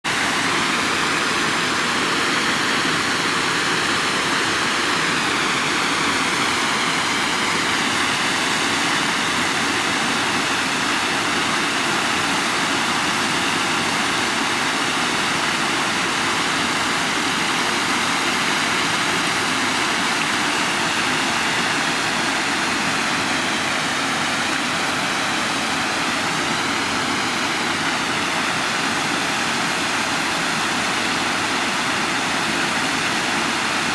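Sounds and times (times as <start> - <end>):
water rushing: 0.0 - 33.9.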